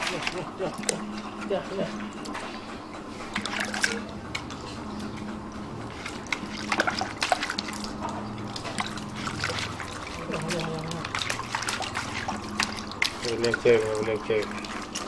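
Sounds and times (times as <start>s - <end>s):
trickling water: 0.0s - 15.0s
sharp clicks and splashes: 3.2s - 15.0s.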